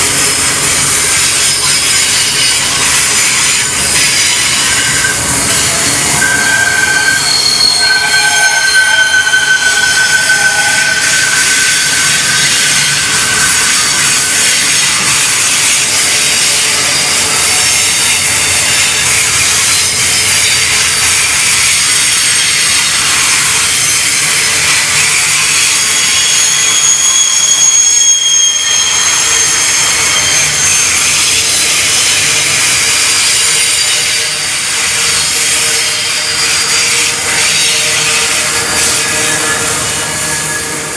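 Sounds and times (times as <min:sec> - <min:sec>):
train wheels rushing on rail: 0:00.0 - 0:40.9
high thin squealing: 0:01.2 - 0:18.2, 0:25.4 - 0:40.9.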